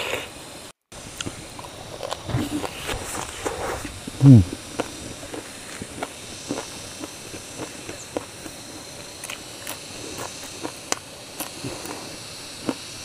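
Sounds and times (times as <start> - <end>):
chewing crunchy food: 1.1 - 13.0
mouth clicks: 3.8 - 5.4.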